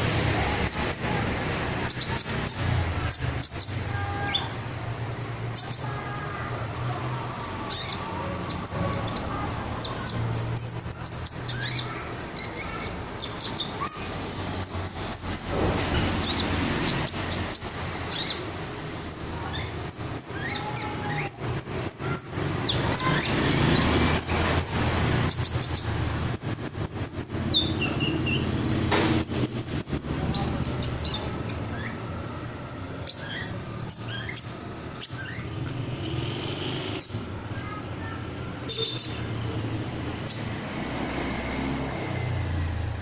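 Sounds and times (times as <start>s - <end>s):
bird singing high twittering trills: 16.2s - 35.6s, 37.0s - 39.4s.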